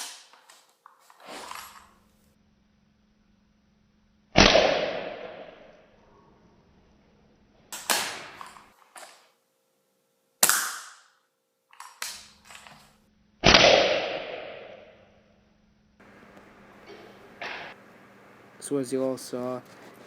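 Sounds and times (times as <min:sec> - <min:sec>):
airsoft rifle shots cracking: 0:00.0 - 0:00.4, 0:04.4 - 0:05.8, 0:07.7 - 0:08.7, 0:10.4 - 0:11.2, 0:13.4 - 0:15.0.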